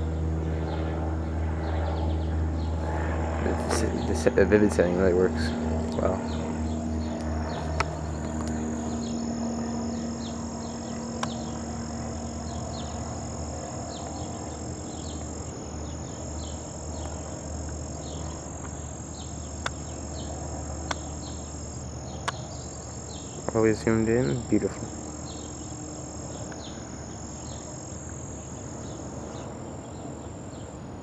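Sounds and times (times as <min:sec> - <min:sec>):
bird chirping: 0:06.1 - 0:30.8
sharp clicks: 0:07.1 - 0:30.8
faint high-pitched tone: 0:08.2 - 0:31.0.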